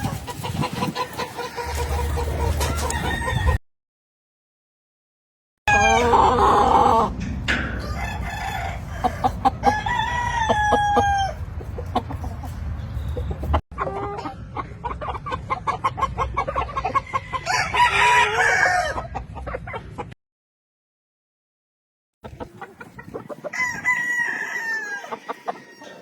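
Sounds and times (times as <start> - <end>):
roosters crowing: 0.0 - 3.6, 5.7 - 12.4, 16.9 - 19.1, 23.2 - 26.0.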